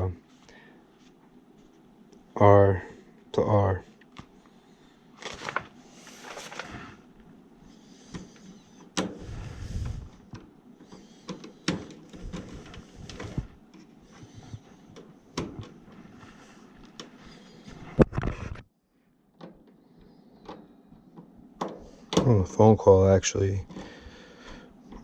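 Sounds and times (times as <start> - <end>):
wires rustling: 5.1 - 7.3, 8.0 - 18.0.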